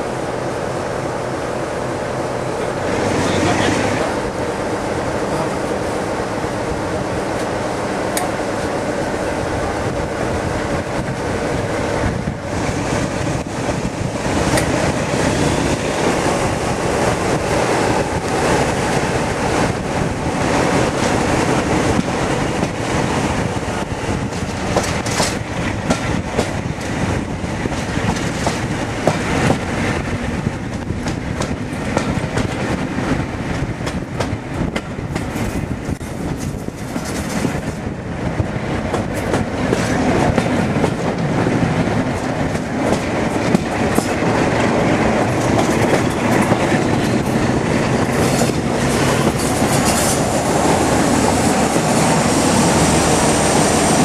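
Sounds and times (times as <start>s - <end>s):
diesel locomotive engine working: 0.0s - 54.0s
wheels clattering over rail joints: 33.9s - 37.9s, 42.0s - 54.0s.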